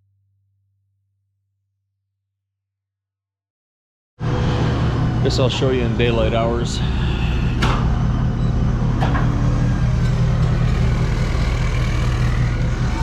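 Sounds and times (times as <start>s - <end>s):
vehicle engine humming: 4.2s - 13.0s.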